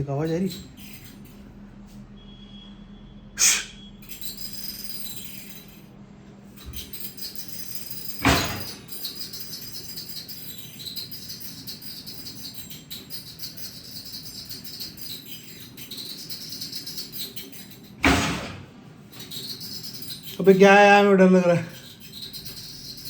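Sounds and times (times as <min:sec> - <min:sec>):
jingling clatter of small objects: 0:04.0 - 0:05.9, 0:06.6 - 0:18.0, 0:19.1 - 0:23.0.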